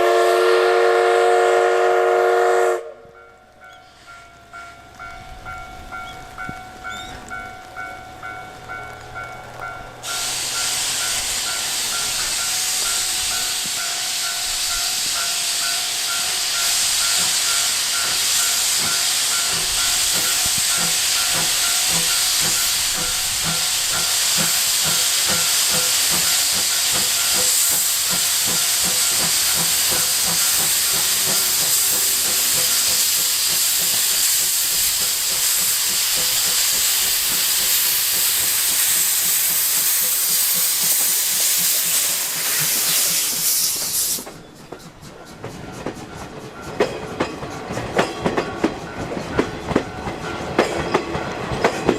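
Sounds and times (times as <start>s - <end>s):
steam locomotive chuffing: 0.0s - 3.0s, 8.3s - 51.9s
steam hissing: 10.0s - 50.6s.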